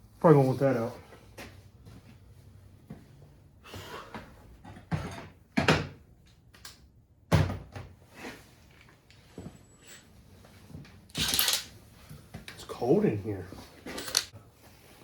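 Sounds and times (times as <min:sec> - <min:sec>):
knocks and clunks of parts: 0:04.6 - 0:06.0.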